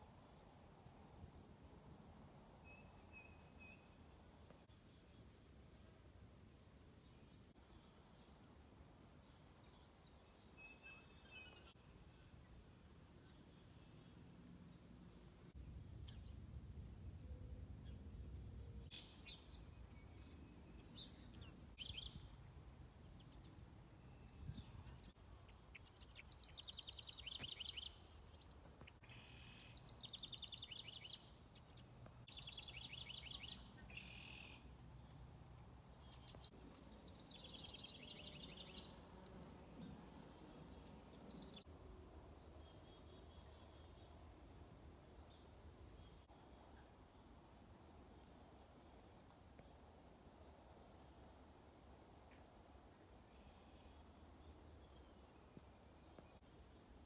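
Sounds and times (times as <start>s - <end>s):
songbirds singing: 9.3s - 44.4s.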